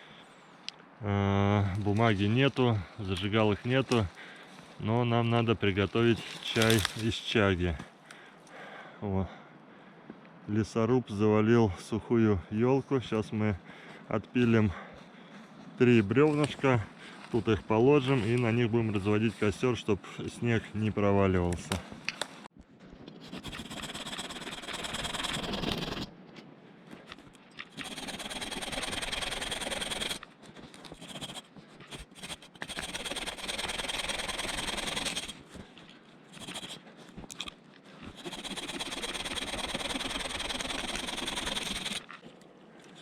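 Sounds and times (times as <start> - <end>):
hand saw rasping through wood: 23.2 - 26.1, 27.7 - 30.2, 30.9 - 35.4, 36.3 - 36.8, 38.1 - 42.1.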